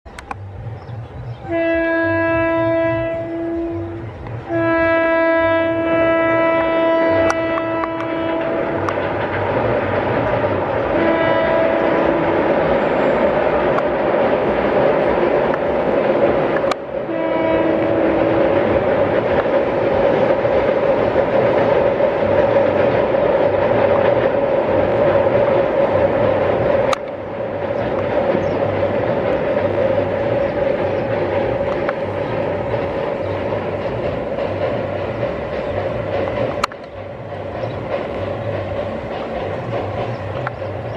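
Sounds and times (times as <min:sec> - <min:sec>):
running train rumble: 0:00.0 - 0:40.9
sharp click: 0:00.1 - 0:00.4
locomotive horn blasts: 0:01.4 - 0:09.0, 0:10.9 - 0:13.3, 0:17.0 - 0:18.6.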